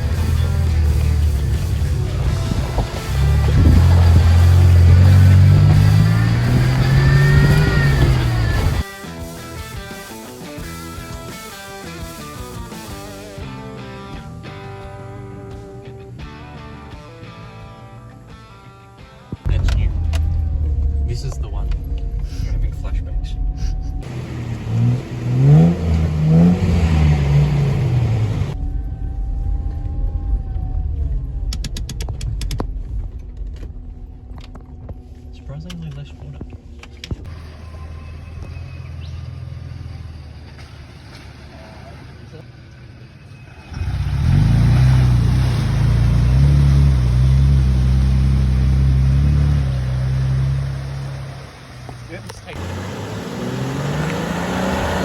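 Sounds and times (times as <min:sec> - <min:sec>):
off-road vehicle engine revving: 0:00.0 - 0:08.9, 0:19.4 - 0:28.6, 0:37.2 - 0:55.0.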